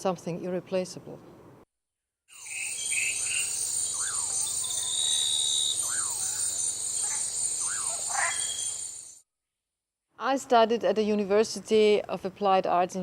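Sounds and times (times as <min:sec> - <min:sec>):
chorus of insects: 0:02.3 - 0:09.2
bird whistled call: 0:02.4 - 0:09.2.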